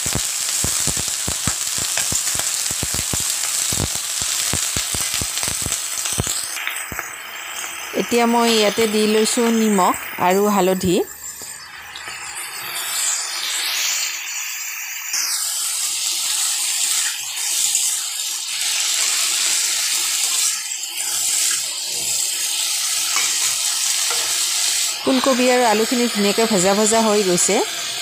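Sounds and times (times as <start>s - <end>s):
vegetables sizzling in hot oil: 0.0s - 28.0s
steel spatula stirring: 24.1s - 24.5s.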